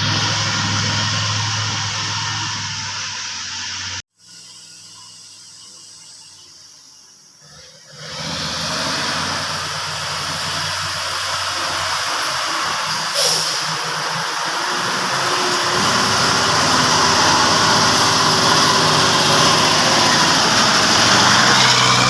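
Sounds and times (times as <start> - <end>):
truck diesel engine running: 0.0 - 4.0, 7.9 - 22.0
short sharp hiss: 12.9 - 13.8.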